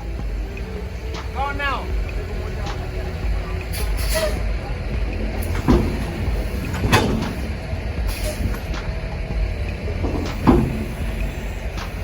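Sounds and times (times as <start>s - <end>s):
truck engine idling: 0.0s - 12.0s
sharp knocks: 5.0s - 12.0s.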